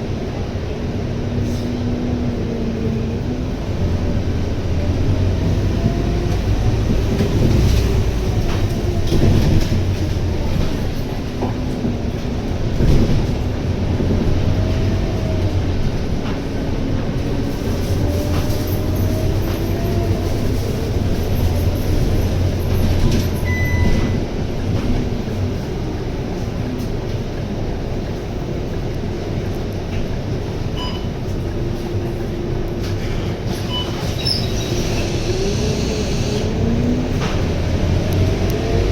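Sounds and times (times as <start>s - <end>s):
bus engine rumbling: 0.0s - 38.9s
short electronic beep: 23.4s - 24.2s, 30.8s - 31.1s.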